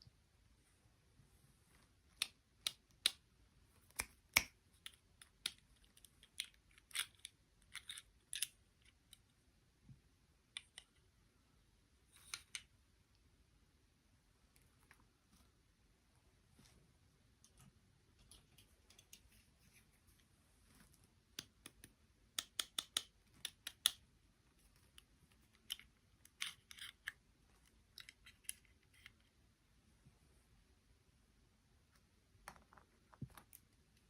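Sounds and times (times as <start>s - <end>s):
clicks from handling small objects: 3.8s - 9.3s, 10.5s - 11.1s, 12.1s - 12.7s, 21.3s - 24.0s, 24.8s - 29.3s.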